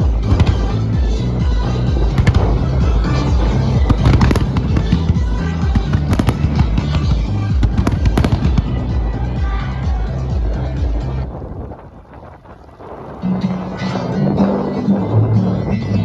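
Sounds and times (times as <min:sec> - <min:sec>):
fireworks bangs and crackles: 0:00.0 - 0:12.5.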